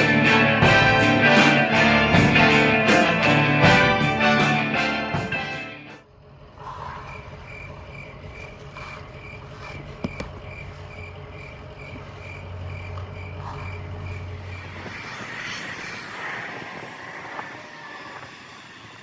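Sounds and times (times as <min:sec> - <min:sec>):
cricket chirping: 0:06.6 - 0:16.1.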